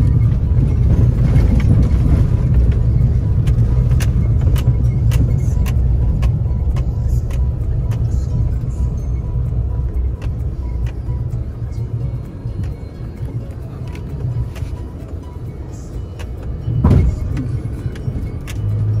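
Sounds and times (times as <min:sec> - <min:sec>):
vehicle low rumble: 0:00.0 - 0:19.0
sharp knocks and rattles: 0:16.6 - 0:18.7.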